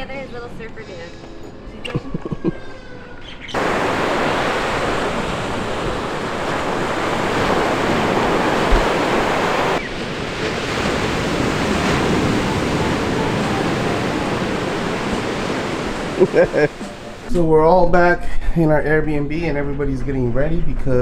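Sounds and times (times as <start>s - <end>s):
ocean surf washing in: 3.6s - 17.3s
wind buffeting microphone: 3.6s - 17.3s.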